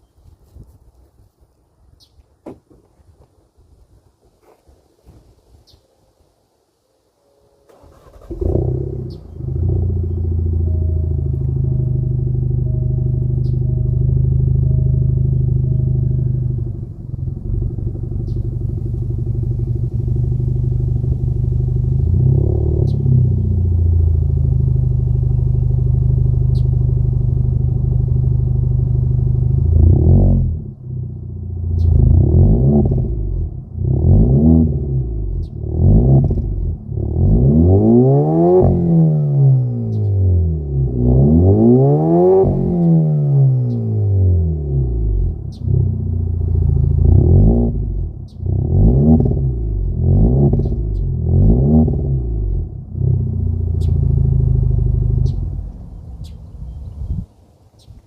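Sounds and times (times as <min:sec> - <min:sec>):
car engine idling: 0:07.7 - 0:37.5, 0:43.6 - 0:57.9
car engine revving: 0:07.7 - 0:56.8.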